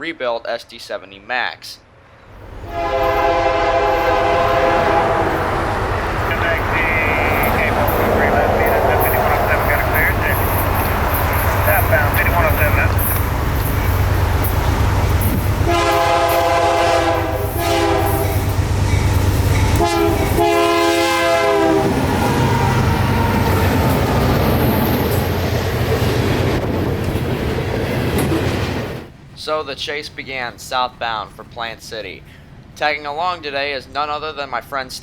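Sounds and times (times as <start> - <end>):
diesel locomotive rumble: 2.3 - 29.2
locomotive horn: 2.6 - 24.3.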